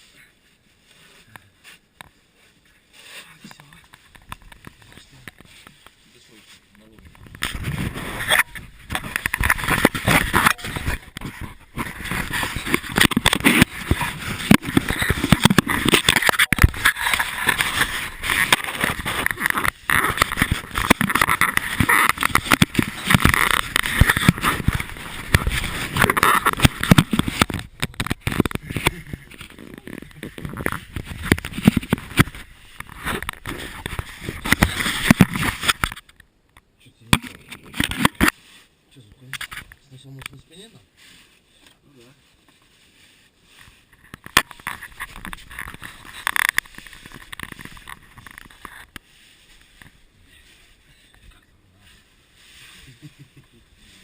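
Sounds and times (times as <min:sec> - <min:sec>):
clothing scraping against rock: 0:00.0 - 0:35.8, 0:39.4 - 0:54.0.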